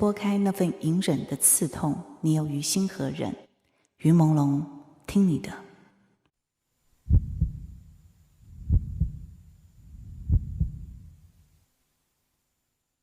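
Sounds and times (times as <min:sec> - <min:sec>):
heartbeat thumps: 0:07.0 - 0:11.3.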